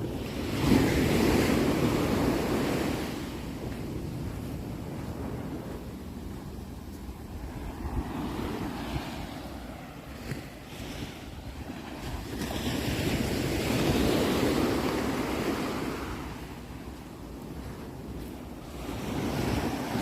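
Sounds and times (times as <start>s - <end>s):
sea waves washing onto shore: 0.0s - 20.0s.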